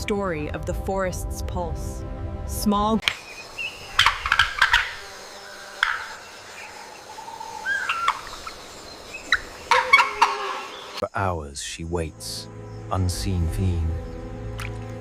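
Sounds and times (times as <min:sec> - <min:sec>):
bird clucking calls: 0:03.0 - 0:11.0.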